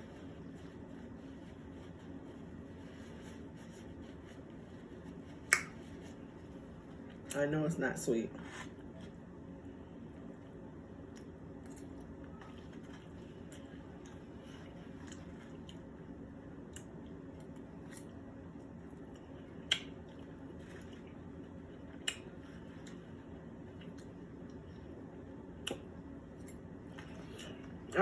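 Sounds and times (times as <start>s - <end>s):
person chewing: 11.1s - 18.1s.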